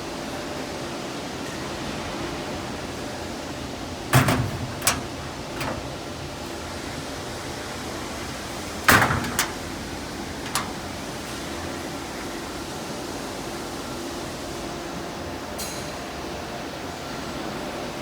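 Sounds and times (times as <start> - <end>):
machinery noise: 4.1 - 7.4.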